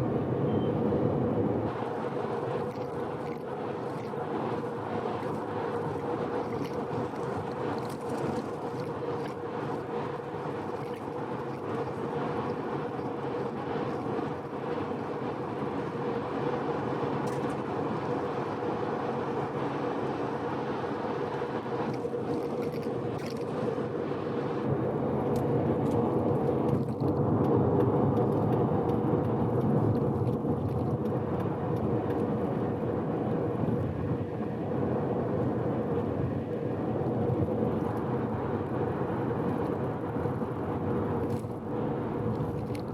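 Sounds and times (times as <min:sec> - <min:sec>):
car engine hum: 0:01.3 - 0:42.9
tyre and road noise: 0:01.3 - 0:42.9.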